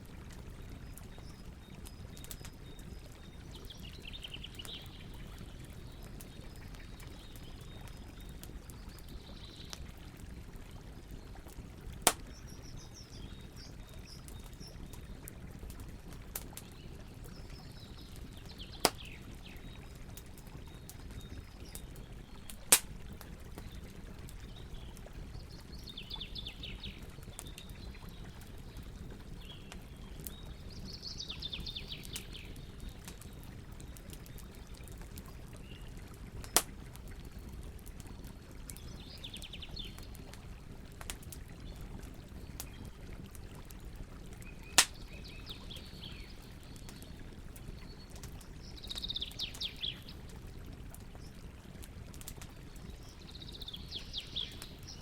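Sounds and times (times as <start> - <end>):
campfire crackling and popping: 0.0 - 55.0
bird singing trilled phrases: 48.6 - 50.1, 52.9 - 55.0.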